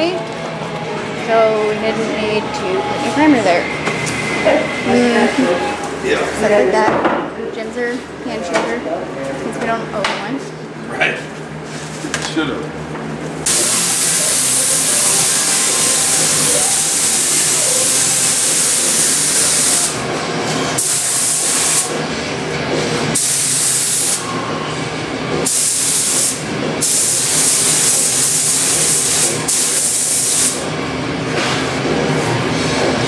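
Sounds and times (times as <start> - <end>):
spray gun hissing: 13.5 - 20.0, 20.8 - 21.9, 23.2 - 24.2, 25.5 - 30.6.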